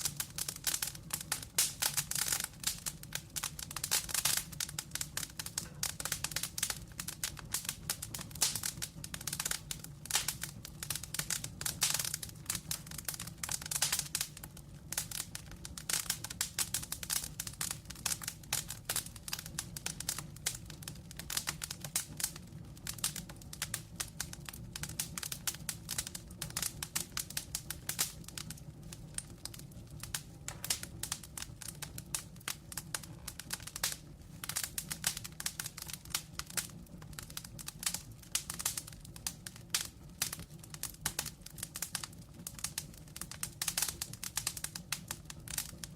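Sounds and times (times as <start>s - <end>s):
wood fire crackling and popping: 0.0s - 45.9s.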